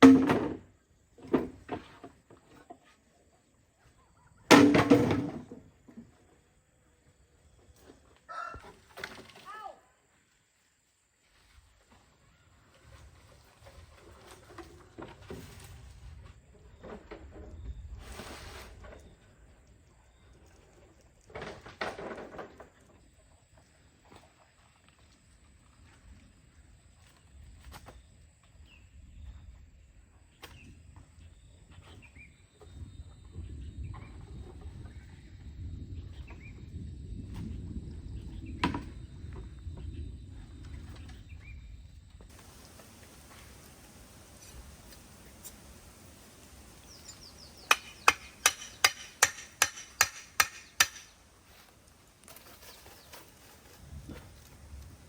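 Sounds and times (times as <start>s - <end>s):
small birds chirping: 40.9s - 51.2s
sharp knocks: 47.6s - 51.2s.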